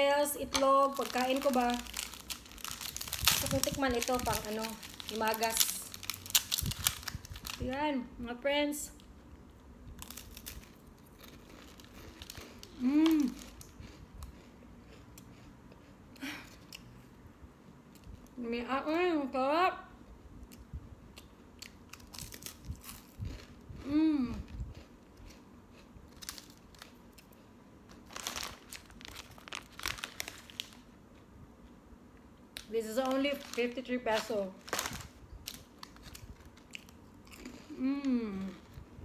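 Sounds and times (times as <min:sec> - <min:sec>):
snack wrapper crinkling: 0:00.4 - 0:07.7, 0:10.0 - 0:15.4, 0:21.6 - 0:23.6, 0:26.1 - 0:31.0, 0:32.6 - 0:37.8
woman humming mmm: 0:12.8 - 0:13.5, 0:23.8 - 0:24.6, 0:37.7 - 0:38.7.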